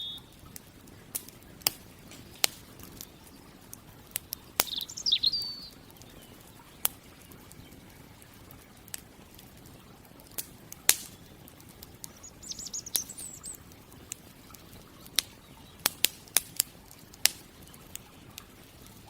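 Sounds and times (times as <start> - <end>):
bird chirping: 0.0 - 0.4, 4.2 - 8.2, 12.0 - 13.7
campfire wood crackling: 0.0 - 19.0.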